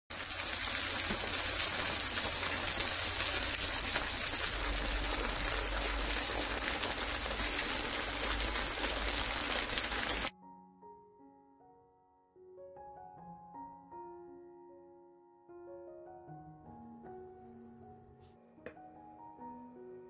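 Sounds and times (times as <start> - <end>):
tofu sizzling in hot oil: 0.1 - 10.3.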